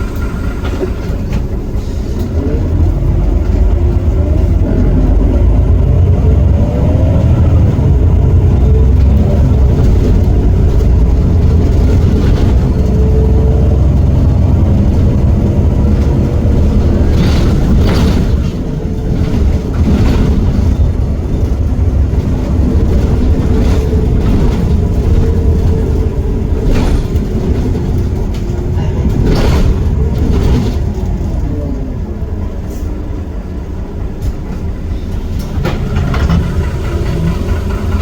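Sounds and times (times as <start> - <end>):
bus diesel engine rumbling: 0.0 - 38.0
sharp knocks and rattles: 7.8 - 31.4, 35.4 - 38.0.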